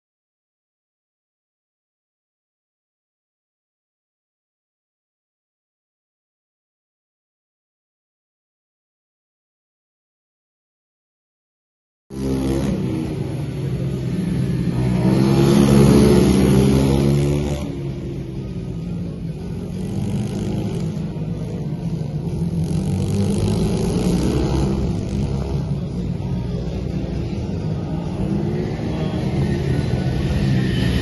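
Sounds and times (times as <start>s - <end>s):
motorbike engine revving: 12.1s - 31.0s.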